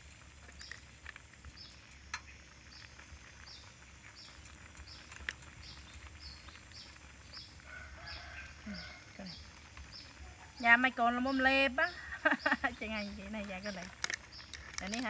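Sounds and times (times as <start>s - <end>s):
bird chirping: 0.0s - 15.0s
sharp clicks: 13.3s - 15.0s.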